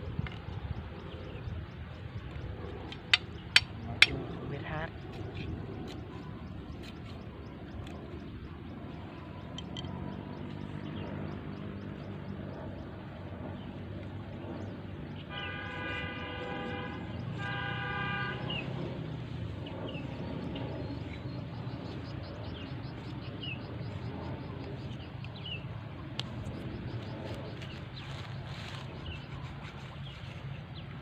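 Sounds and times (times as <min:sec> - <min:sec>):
vehicle horn honking: 0:15.3 - 0:18.8.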